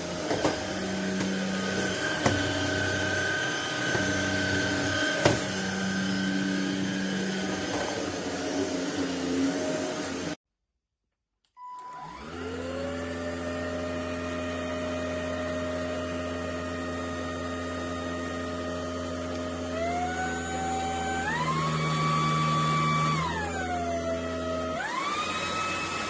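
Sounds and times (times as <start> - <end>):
stick vacuum motor whining: 0.0 - 10.4, 11.8 - 26.0.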